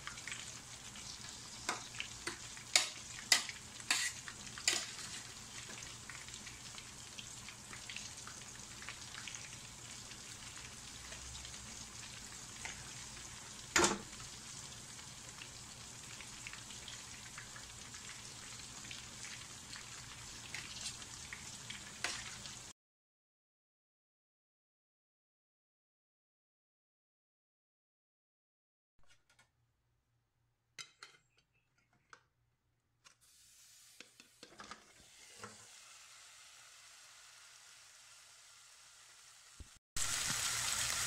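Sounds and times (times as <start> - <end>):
chicken deep-frying in oil: 0.0 - 22.8, 33.1 - 41.0.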